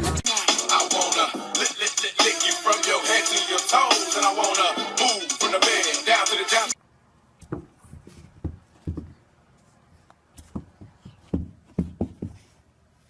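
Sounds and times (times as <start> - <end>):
hip-hop music: 0.0 - 6.8.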